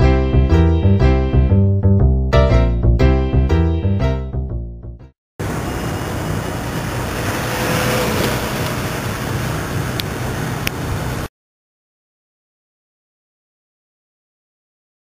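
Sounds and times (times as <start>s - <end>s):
road noise rumble: 5.4s - 11.3s
rushing wind: 5.4s - 11.3s.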